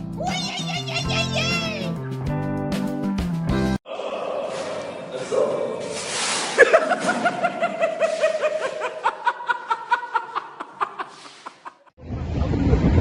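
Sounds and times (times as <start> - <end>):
person laughing: 6.6 - 11.9.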